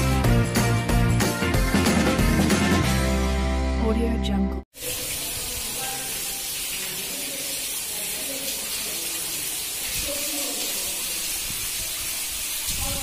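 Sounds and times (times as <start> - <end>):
rain on stone paving: 4.7 - 13.0.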